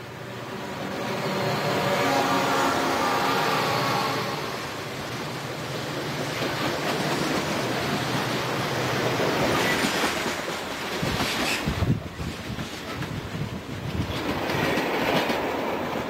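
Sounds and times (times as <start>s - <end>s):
train cars rolling past: 0.0s - 16.0s
wheels clicking over rail joints: 9.0s - 16.0s.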